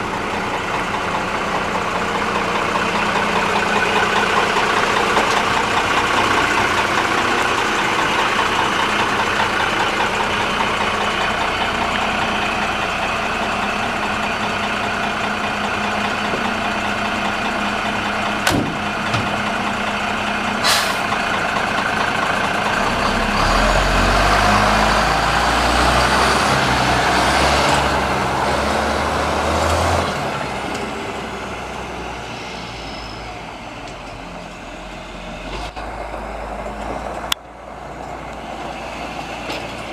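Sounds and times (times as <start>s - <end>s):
diesel truck engine running: 0.0s - 39.9s
short sharp air releases: 20.6s - 21.0s.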